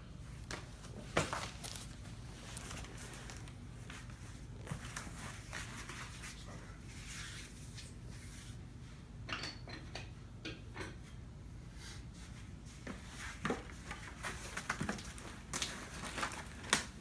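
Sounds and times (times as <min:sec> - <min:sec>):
low steady hum: 0:00.0 - 0:17.0
cardboard rustling and scraping: 0:12.8 - 0:16.9.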